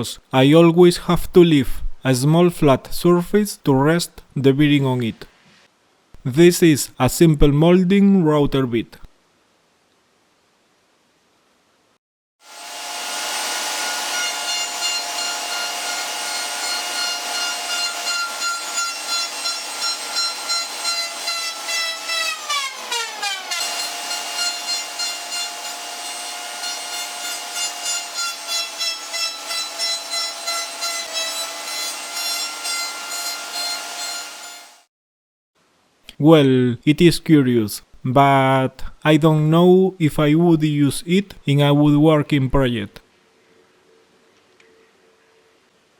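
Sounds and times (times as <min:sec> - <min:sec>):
router whining: 0:12.4 - 0:34.8
router bit cutting wood: 0:12.4 - 0:34.9.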